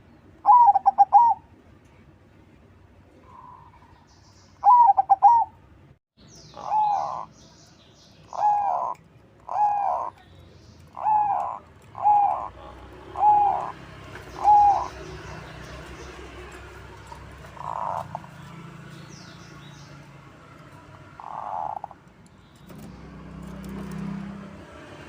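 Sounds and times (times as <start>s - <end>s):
dove cooing: 0.4s - 1.5s, 4.6s - 5.5s, 6.5s - 7.3s, 8.3s - 10.1s, 11.0s - 18.4s, 21.2s - 22.0s.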